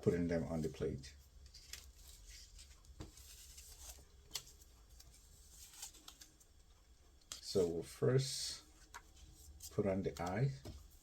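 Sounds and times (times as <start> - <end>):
paper rustling: 1.4 - 7.7.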